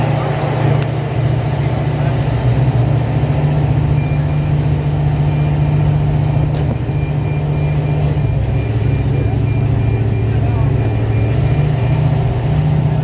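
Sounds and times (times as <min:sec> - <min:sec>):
car engine idling: 0:00.0 - 0:11.3
faint high beep: 0:06.7 - 0:12.1.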